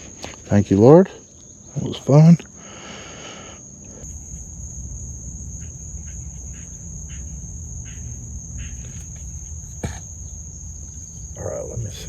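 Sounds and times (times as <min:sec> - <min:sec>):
crickets trilling: 0:00.0 - 0:12.0
low rumble: 0:04.0 - 0:12.0.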